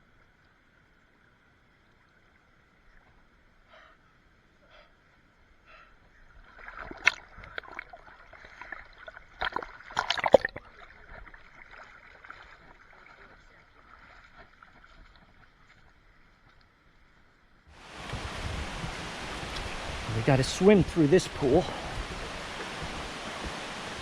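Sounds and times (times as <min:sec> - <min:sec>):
flowing water rushing: 0:06.4 - 0:16.0, 0:17.7 - 0:24.0
water splashing from wading: 0:06.4 - 0:16.5, 0:17.8 - 0:24.0.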